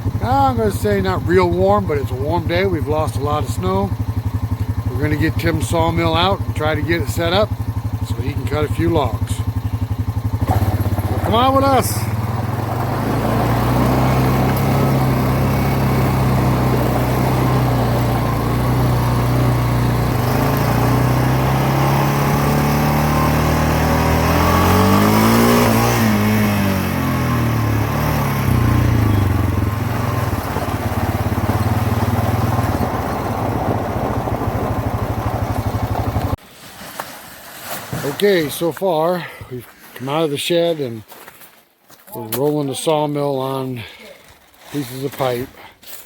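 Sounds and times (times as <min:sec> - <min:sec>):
vehicle engine running: 0:00.0 - 0:36.4.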